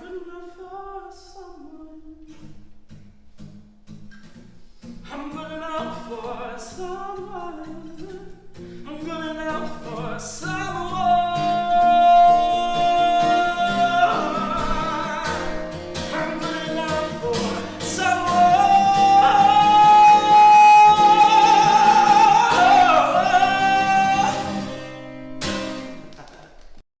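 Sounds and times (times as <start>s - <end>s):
person singing long high notes: 11.4s - 24.8s.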